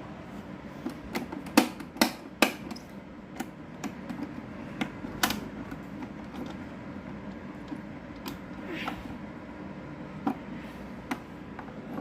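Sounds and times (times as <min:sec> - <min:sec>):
electric fan humming: 0:00.0 - 0:12.0
fan switch clicks: 0:00.8 - 0:05.8.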